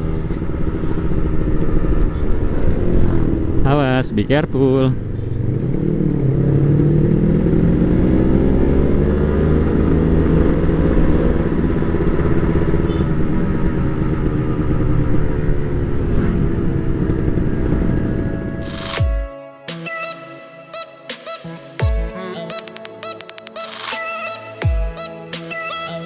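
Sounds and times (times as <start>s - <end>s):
motorcycle engine under load: 0.0s - 18.9s.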